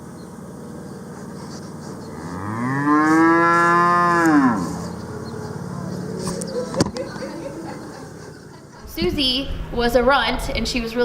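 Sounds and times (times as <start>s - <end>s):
cow mooing: 2.1s - 6.2s.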